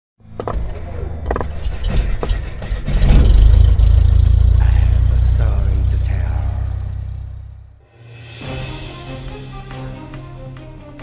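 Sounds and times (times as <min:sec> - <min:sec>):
sharp knocks: 0:01.3 - 0:04.6.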